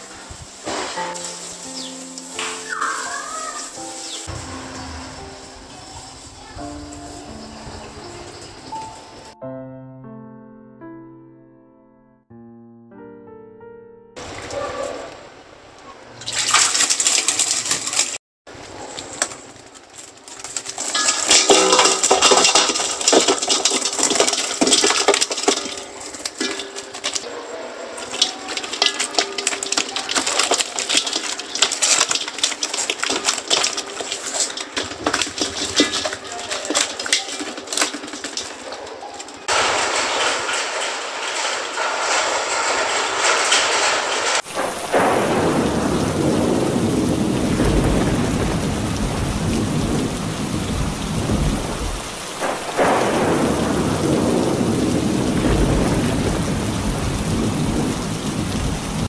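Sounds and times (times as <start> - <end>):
rain falling: 0.0 - 9.4, 14.2 - 59.0
low rumble: 4.3 - 8.6.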